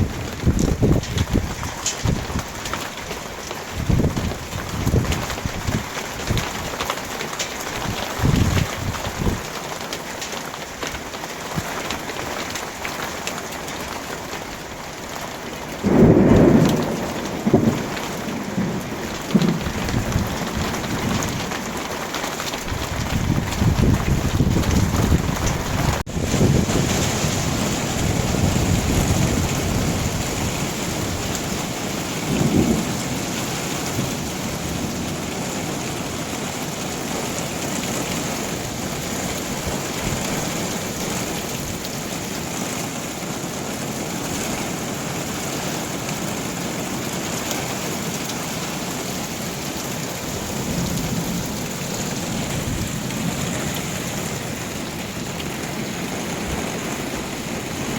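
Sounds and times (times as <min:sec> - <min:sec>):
rolling thunder: 0:00.0 - 0:02.9, 0:03.7 - 0:06.6, 0:15.8 - 0:35.4, 0:50.2 - 0:57.9
heavy rain pouring: 0:00.0 - 0:57.9
thunder peal: 0:15.8 - 0:21.8.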